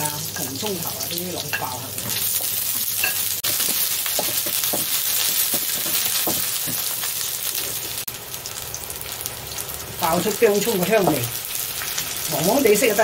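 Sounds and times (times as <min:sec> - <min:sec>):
ginger sizzling in hot oil: 0:00.0 - 0:13.0.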